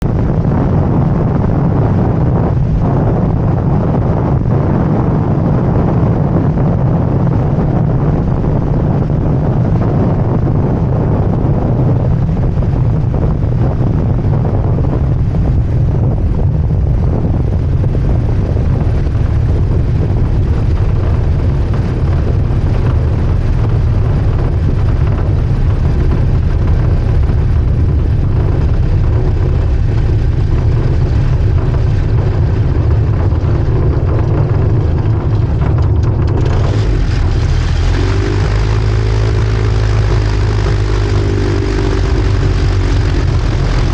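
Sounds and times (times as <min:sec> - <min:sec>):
light aircraft engine and propeller: 0:00.0 - 0:43.9
wind buffeting microphone: 0:00.0 - 0:43.9.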